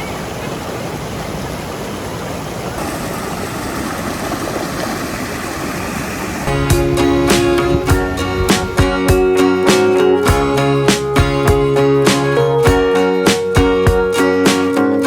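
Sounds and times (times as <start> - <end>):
waterfall and stream rushing: 0.0 - 11.1.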